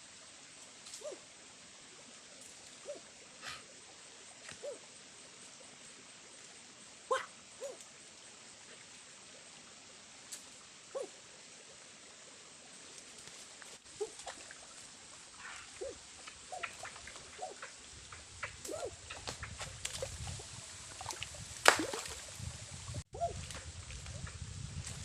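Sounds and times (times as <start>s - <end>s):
steady hiss: 0.0s - 23.1s
short animal calls: 7.1s - 7.8s.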